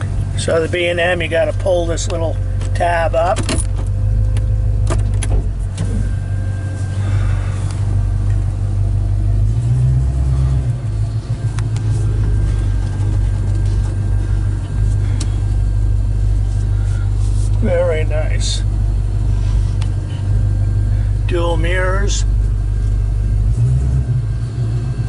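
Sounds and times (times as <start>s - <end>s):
car engine droning: 0.0s - 25.0s.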